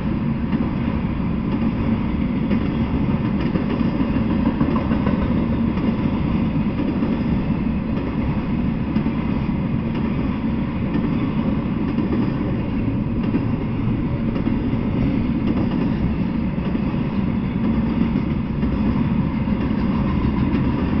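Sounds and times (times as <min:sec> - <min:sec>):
steel wheels rumbling on rails: 0:00.0 - 0:21.0.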